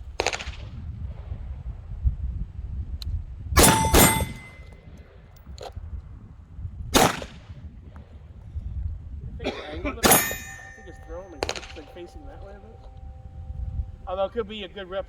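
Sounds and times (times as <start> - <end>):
gunshots: 3.6 - 4.6, 7.0 - 7.4, 10.0 - 12.0
steel target ringing: 3.6 - 4.8, 10.0 - 15.0.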